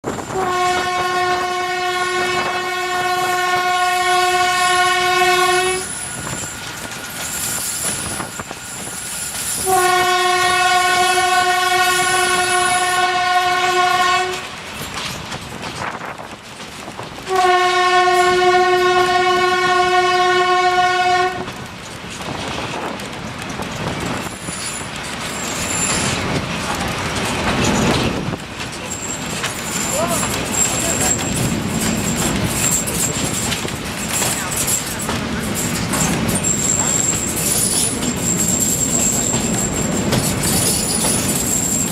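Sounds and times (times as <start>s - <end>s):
train rattling rumble: 0.0s - 41.9s
train horn blasts: 0.3s - 6.1s, 9.6s - 14.5s, 17.3s - 21.5s.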